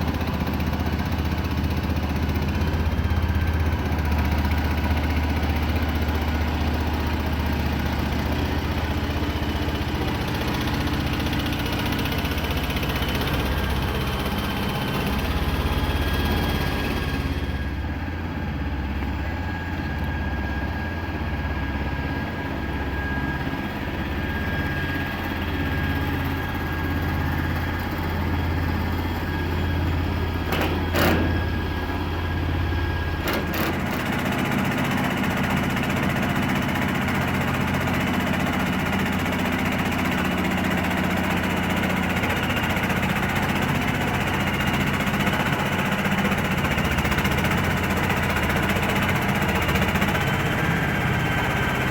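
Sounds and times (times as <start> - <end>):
truck engine running: 0.0 - 51.9.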